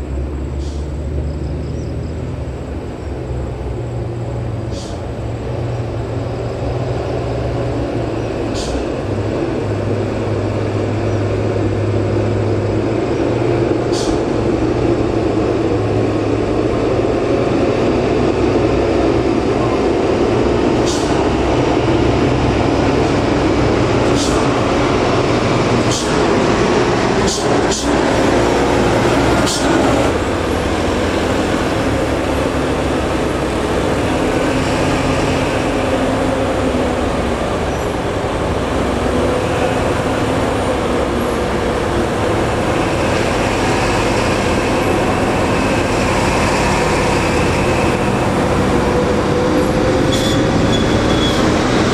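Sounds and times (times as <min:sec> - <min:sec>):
diesel truck engine running: 0:00.0 - 0:51.9.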